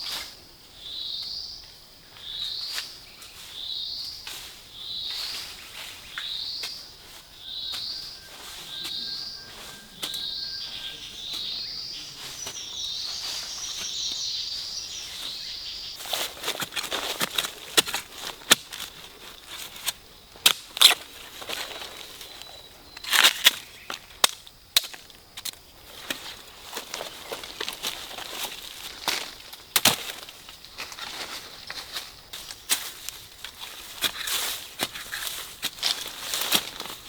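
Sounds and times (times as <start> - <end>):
bird chirping: 0.8 - 17.1
crunching in dry leaves and twigs: 2.2 - 37.0.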